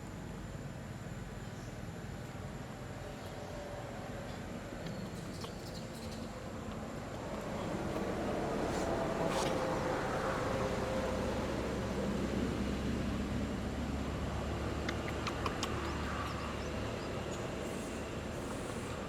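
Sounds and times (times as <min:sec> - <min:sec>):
faint clicks: 0:14.8 - 0:16.4.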